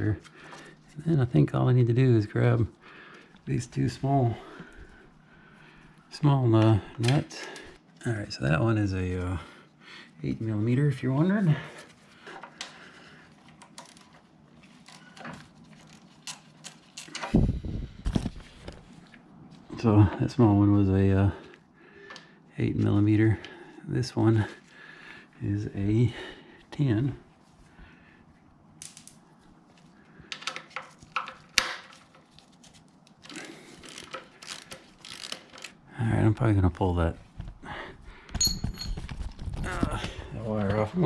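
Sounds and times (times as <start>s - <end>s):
metal tools clinking: 38.4s - 39.1s.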